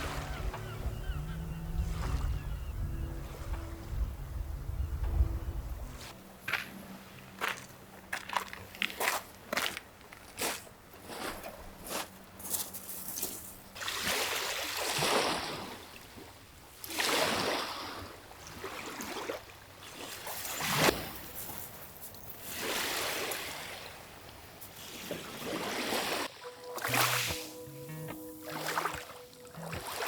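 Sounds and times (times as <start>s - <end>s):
music: 0.0s - 7.3s, 26.3s - 30.0s
small waves washing on shore: 13.2s - 21.7s, 22.4s - 27.6s.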